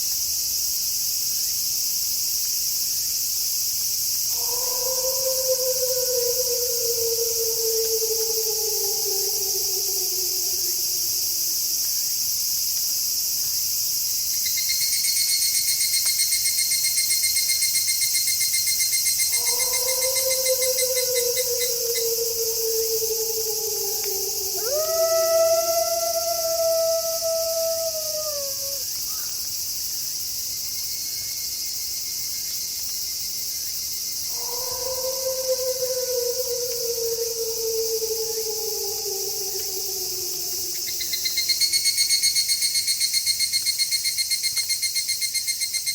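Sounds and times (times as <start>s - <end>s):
cricket chirping: 0.0s - 45.9s
night insect chorus: 0.0s - 45.9s
wolf howling: 4.3s - 11.8s, 19.2s - 28.9s, 34.3s - 41.9s.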